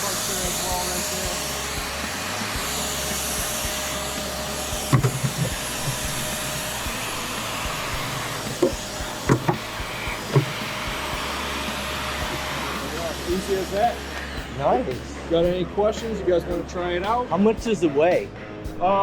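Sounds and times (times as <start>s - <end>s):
backpack vacuum running: 0.0s - 14.4s.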